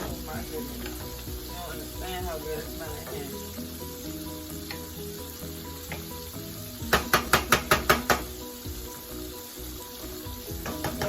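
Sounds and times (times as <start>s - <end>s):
rice sizzling in hot oil: 0.0s - 11.0s
spoon clacking against pot: 6.8s - 8.3s, 10.6s - 11.0s.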